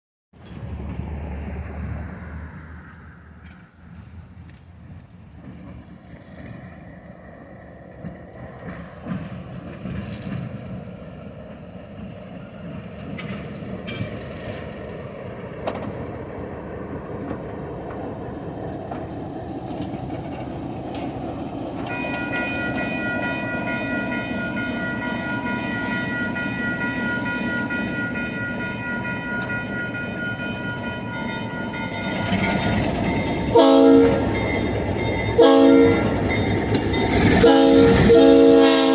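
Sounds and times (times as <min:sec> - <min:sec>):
diesel locomotive rumble: 0:00.4 - 0:38.9
train horn: 0:33.5 - 0:34.3, 0:35.3 - 0:36.2, 0:37.3 - 0:38.9.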